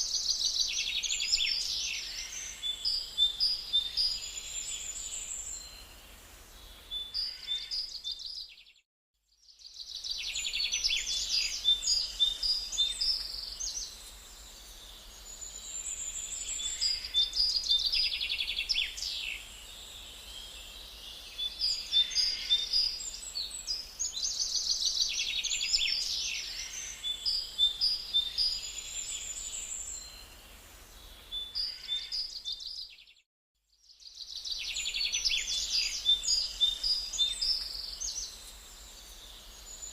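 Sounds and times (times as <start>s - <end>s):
birds chirping and trilling: 0.0s - 5.9s, 6.6s - 8.8s, 9.8s - 33.2s, 34.0s - 39.9s
background hiss: 9.6s - 32.2s, 34.0s - 39.9s.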